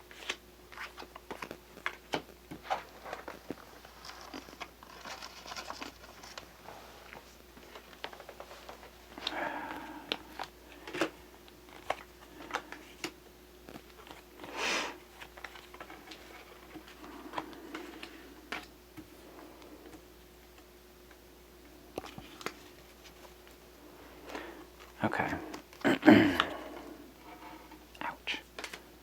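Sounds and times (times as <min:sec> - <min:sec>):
cards rustling and sliding: 0:00.1 - 0:18.8, 0:28.5 - 0:28.9
cards tapping and clicking: 0:07.6 - 0:14.5, 0:28.6 - 0:28.9.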